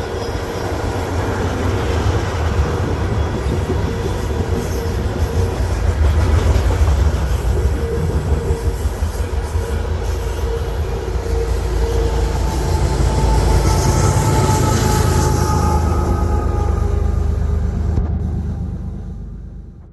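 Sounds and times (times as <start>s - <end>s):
train wheels rumbling on rail: 0.0s - 19.9s
thin wheel squeal: 10.1s - 17.8s.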